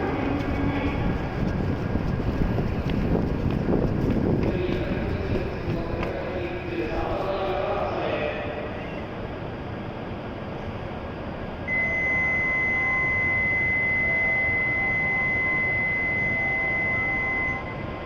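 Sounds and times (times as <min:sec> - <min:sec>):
low train platform noise: 0:00.0 - 0:18.0
high-pitched electronic tone: 0:11.7 - 0:18.0.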